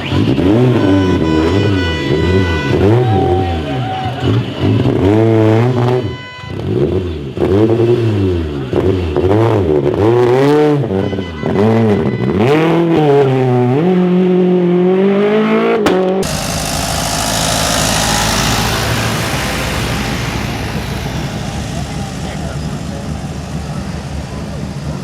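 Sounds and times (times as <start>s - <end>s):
rally car engine revving: 0.0s - 25.0s
sharp crack: 15.8s - 19.4s
steady rushing noise: 16.2s - 25.0s.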